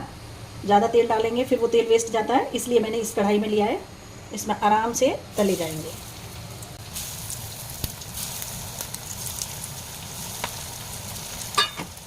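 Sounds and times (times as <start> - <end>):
food deep-frying in oil: 4.5 - 12.0.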